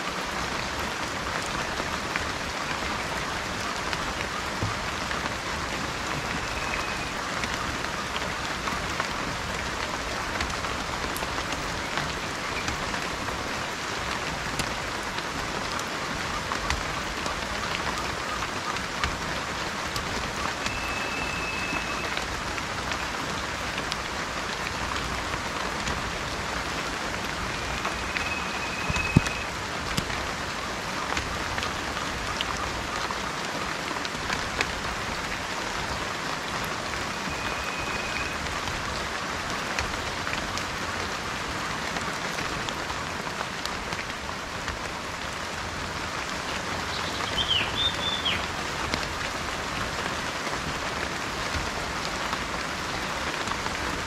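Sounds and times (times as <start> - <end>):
steady rain falling: 0.0 - 54.0
bird whistling and calling: 20.7 - 22.2, 27.5 - 29.5, 37.3 - 38.4, 46.9 - 48.4.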